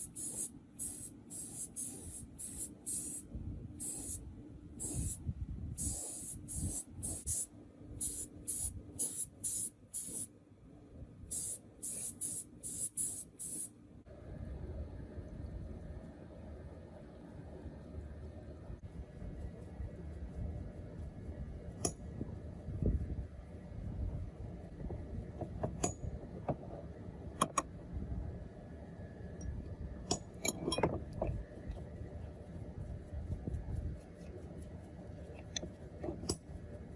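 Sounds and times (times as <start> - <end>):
spray nozzle hissing spurts: 0.0 - 3.2, 3.8 - 4.2, 4.8 - 5.2, 5.8 - 10.3
low steady rumble: 0.0 - 36.9
steady low hum: 0.0 - 36.9.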